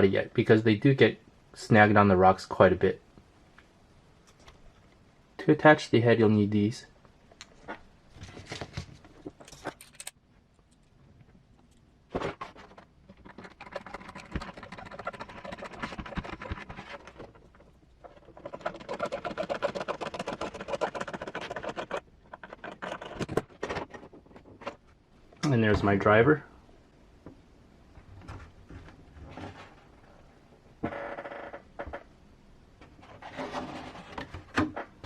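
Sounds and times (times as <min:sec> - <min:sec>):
small parts clicking and scraping: 0:09.0 - 0:24.8
rapid rattling ticks: 0:13.1 - 0:17.2, 0:18.1 - 0:23.3.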